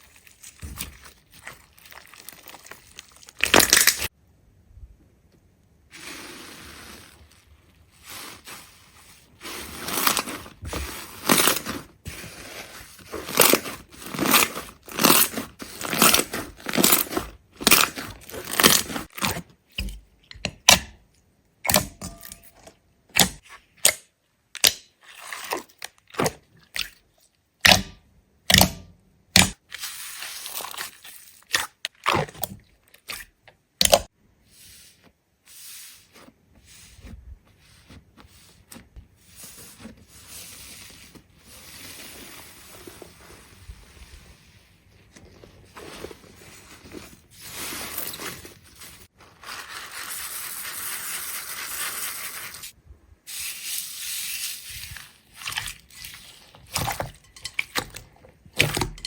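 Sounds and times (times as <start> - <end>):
crunching and crackling: 0.0 - 4.2, 5.9 - 19.7, 44.9 - 59.0.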